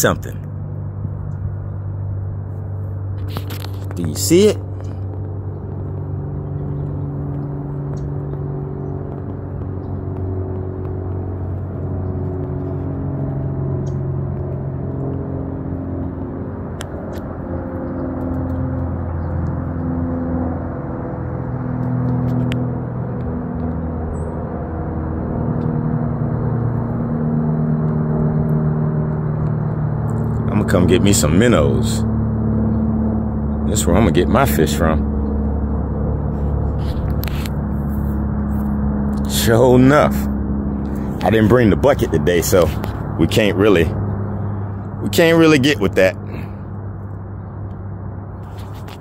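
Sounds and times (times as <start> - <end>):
low mechanical hum: 0.0 - 49.0.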